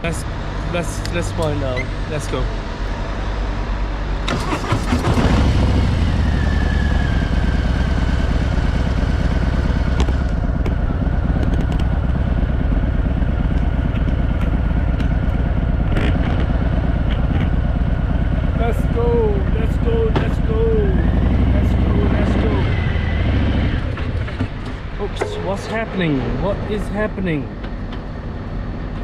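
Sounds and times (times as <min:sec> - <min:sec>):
motorcycle engine revving: 0:04.3 - 0:26.8.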